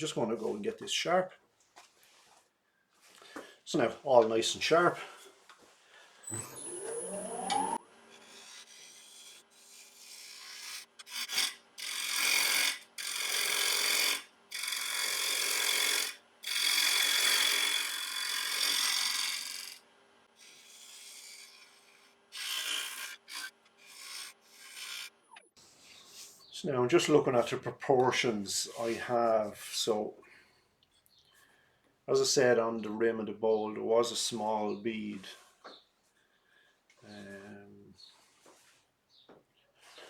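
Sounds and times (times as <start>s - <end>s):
wood lathe whining and humming: 6.2s - 19.8s, 20.4s - 25.2s
gouge scraping spinning wood: 6.4s - 19.8s, 20.4s - 25.2s.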